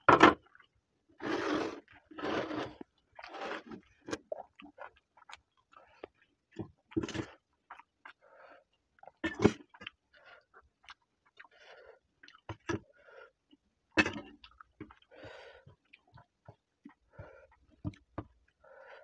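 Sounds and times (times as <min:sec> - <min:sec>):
wet chewing and lip smacks: 0:04.0 - 0:11.6, 0:12.2 - 0:12.6.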